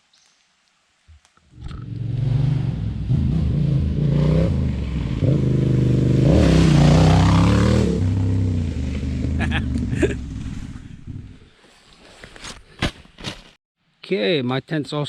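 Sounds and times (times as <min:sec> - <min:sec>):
motorcycle engine revving: 0:01.6 - 0:11.4.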